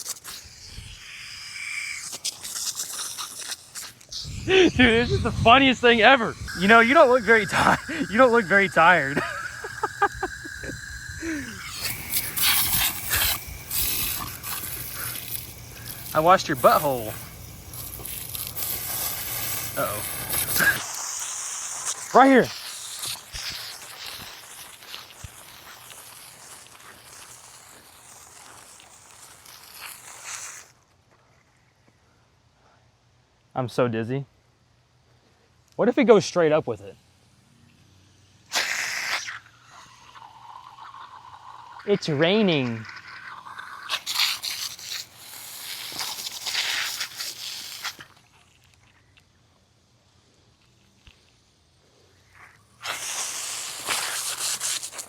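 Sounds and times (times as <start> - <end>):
water spraying from garden hose: 0.0 - 30.8, 37.1 - 55.0
water patter and rustling: 40.2 - 49.2.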